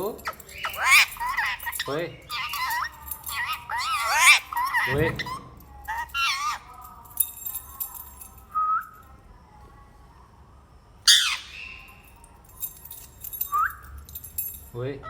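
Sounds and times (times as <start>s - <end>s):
parrot chirp: 0.0s - 6.8s, 11.1s - 12.2s
parrot squawk: 0.2s - 6.7s, 11.1s - 11.9s.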